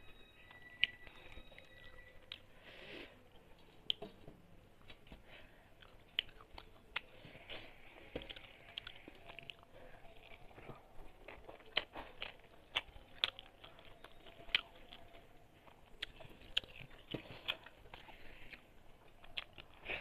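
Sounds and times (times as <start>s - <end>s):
chewing and lip-smacking: 5.8s - 20.0s.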